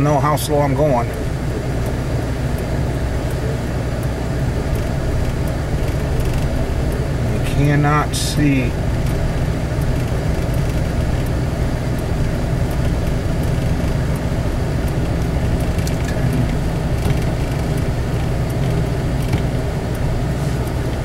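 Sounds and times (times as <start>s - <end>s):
vehicle engine rumble in cabin: 0.0s - 21.0s
faint ticks: 1.8s - 7.8s, 9.0s - 21.0s.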